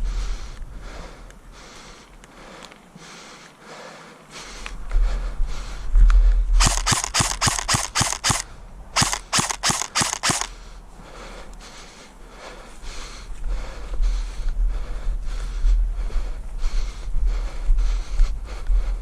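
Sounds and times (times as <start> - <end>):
airsoft gun firing: 6.6 - 10.6.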